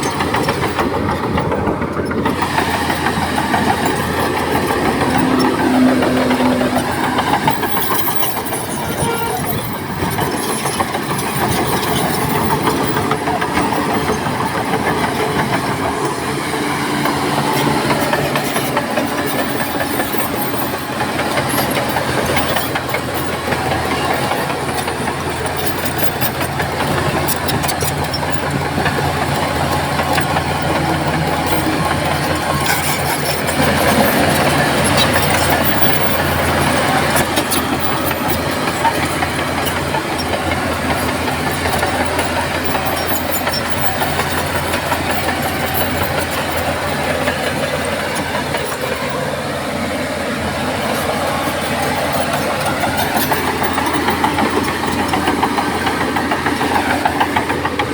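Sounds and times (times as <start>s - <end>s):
bulldozer diesel engine: 0.0s - 57.9s
steel tracks clattering: 0.0s - 57.9s.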